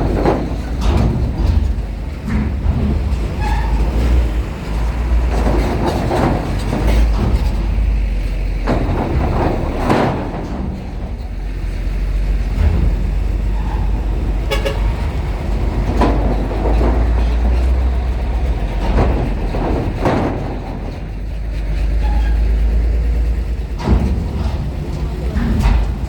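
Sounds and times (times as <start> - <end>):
heavy vehicle engines rumbling: 0.0 - 26.0
short horn toot: 14.5 - 14.9.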